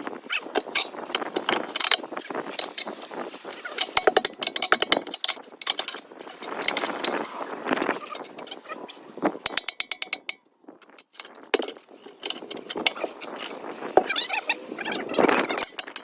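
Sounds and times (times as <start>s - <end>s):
hand ratchet clicking: 0.4s - 7.3s, 9.4s - 14.4s, 15.3s - 16.0s
metal knocks and clanks: 3.7s - 8.8s, 9.4s - 14.2s.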